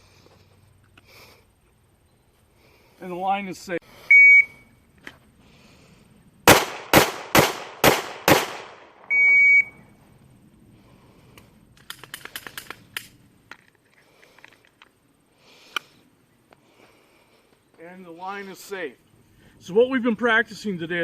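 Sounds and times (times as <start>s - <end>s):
electronic beep: 4.1s - 4.7s, 9.1s - 9.8s
pistol shots: 6.4s - 9.1s.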